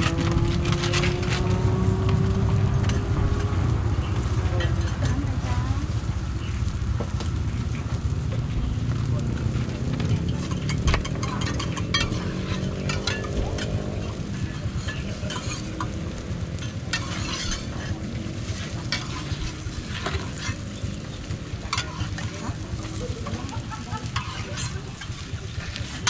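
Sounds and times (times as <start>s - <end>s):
flatbread sizzling on griddle: 0.0s - 26.0s
steady low rumble: 0.0s - 26.0s
metal spatula scraping pan: 10.2s - 26.0s.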